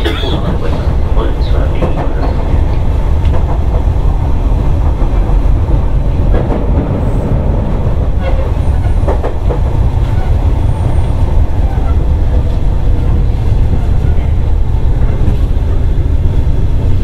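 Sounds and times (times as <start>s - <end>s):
train motors and wheels rumbling: 0.0s - 17.0s
train wheel clacks: 0.0s - 17.0s.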